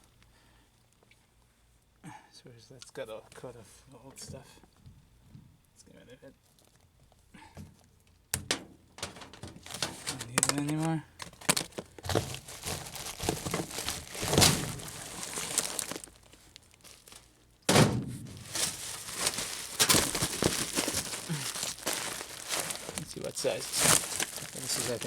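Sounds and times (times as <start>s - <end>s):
plastic duct crinkling and rustling: 8.4s - 25.0s
loud thud: 17.7s - 18.6s.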